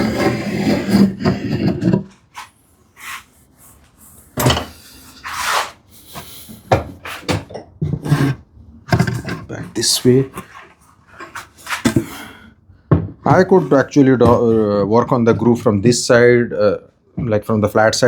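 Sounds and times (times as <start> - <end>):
wood scraping against wood: 0.0 - 12.4, 13.3 - 15.7
wooden knocks: 12.9 - 13.5, 14.2 - 14.6.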